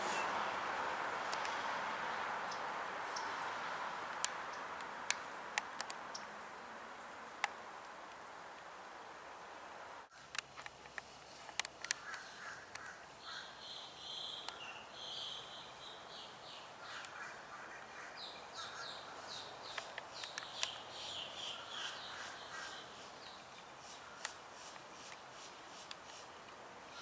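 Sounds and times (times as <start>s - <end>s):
sharp clicks: 10.3s - 13.0s, 19.7s - 20.8s
bird calling harshly: 11.9s - 15.7s, 16.8s - 19.4s, 20.6s - 23.2s.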